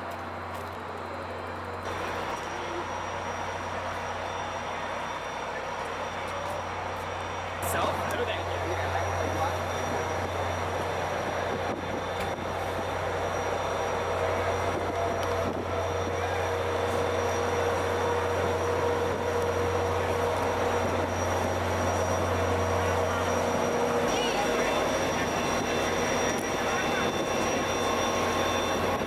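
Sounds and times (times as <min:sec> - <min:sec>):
idling locomotive drone: 0:00.0 - 0:29.0.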